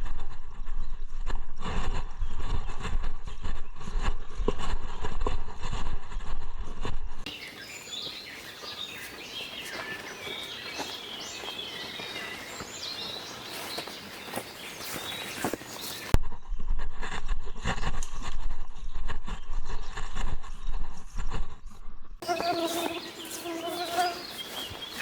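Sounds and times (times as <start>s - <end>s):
birds chirping and trilling: 7.3s - 16.2s, 22.2s - 25.0s
forest ambience: 7.3s - 16.2s, 22.2s - 25.0s.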